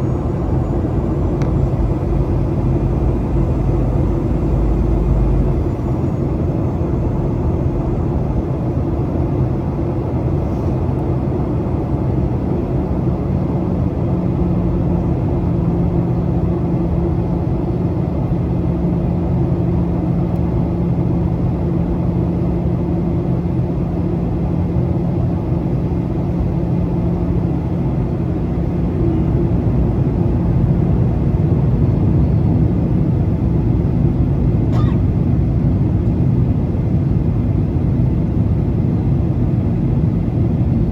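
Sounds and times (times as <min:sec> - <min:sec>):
low steady hum: 0:00.0 - 0:12.0
airplane cabin engine rumble: 0:00.0 - 0:40.9.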